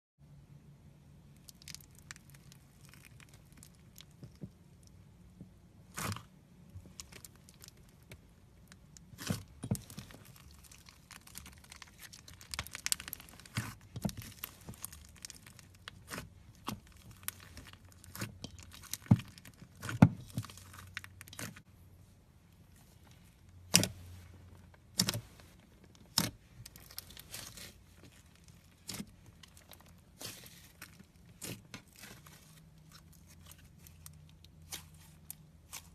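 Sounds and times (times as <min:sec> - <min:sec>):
crunchy slime squeezed by hand: 0:05.9 - 0:08.1, 0:08.8 - 0:21.6.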